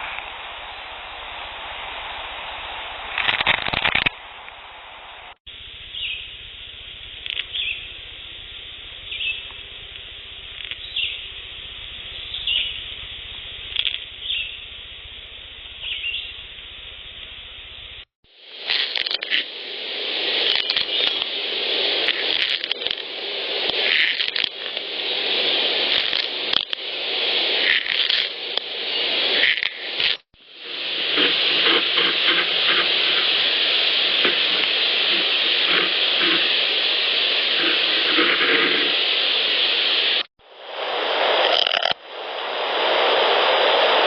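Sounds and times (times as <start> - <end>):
rough continuous scratching: 31.0 - 36.6.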